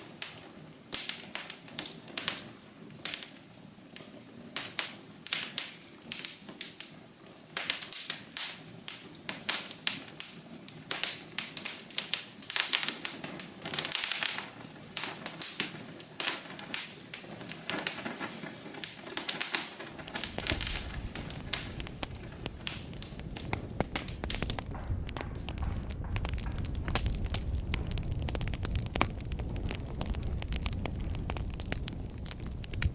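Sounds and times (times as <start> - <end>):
wood fire crackling: 0.1 - 32.9
low rumble of flames: 20.0 - 32.9.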